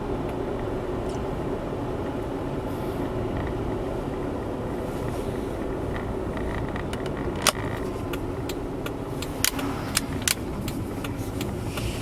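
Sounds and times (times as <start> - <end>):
car engine and road rumble: 0.0 - 12.0
sharp clicks and rattles: 5.6 - 12.0.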